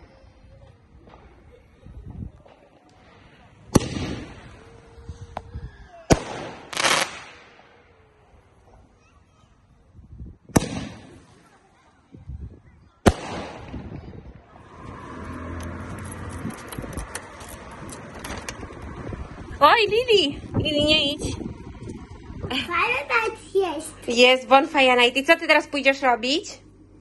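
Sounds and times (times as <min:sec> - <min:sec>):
fireworks bang rumbling: 0:01.0 - 0:07.8, 0:10.5 - 0:11.4, 0:13.0 - 0:14.5
firework sharp crack: 0:02.8 - 0:04.7, 0:06.1 - 0:07.9, 0:10.5 - 0:11.4, 0:13.0 - 0:14.2
low rumble: 0:13.3 - 0:27.0.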